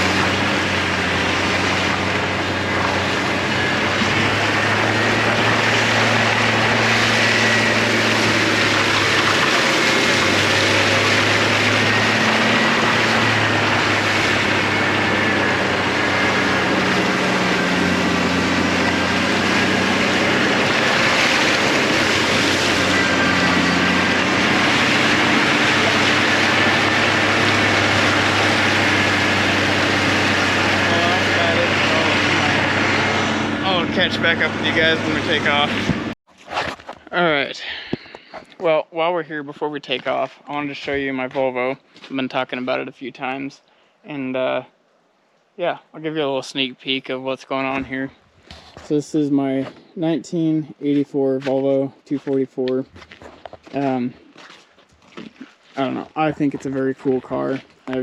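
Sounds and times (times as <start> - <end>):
truck engine running under load: 0.0 - 36.2
tires rushing through snow: 0.0 - 36.8.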